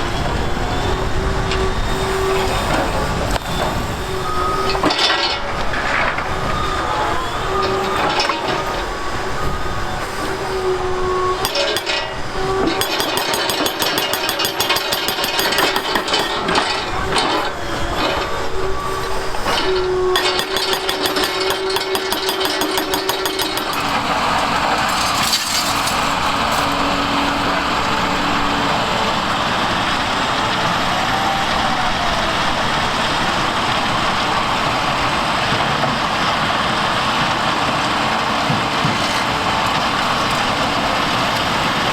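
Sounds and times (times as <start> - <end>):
steady whine: 0.0 - 35.5
engine and hydraulics running: 0.0 - 41.9
rapid hammering and rattling: 11.4 - 17.4, 20.2 - 24.0.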